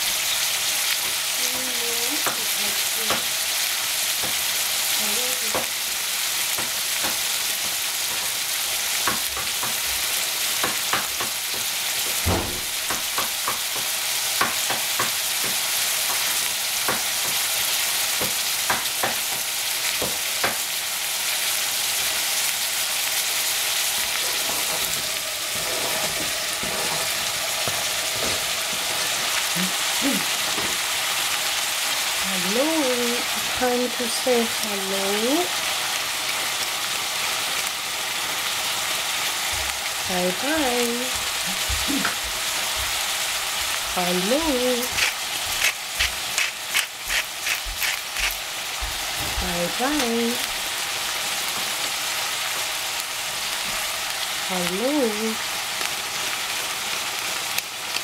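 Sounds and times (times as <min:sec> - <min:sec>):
vegetables sizzling in a pan: 0:00.0 - 0:58.0
pan knock: 0:12.3 - 0:13.0.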